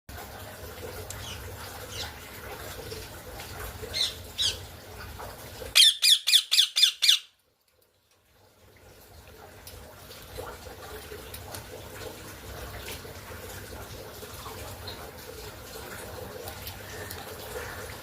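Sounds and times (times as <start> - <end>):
parrot squawking: 4.0 - 4.6, 5.8 - 7.3.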